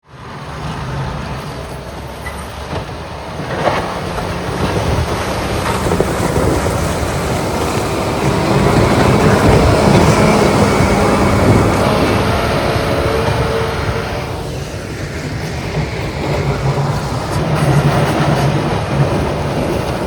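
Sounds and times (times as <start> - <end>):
heavy diesel engines rumbling: 0.0 - 20.0.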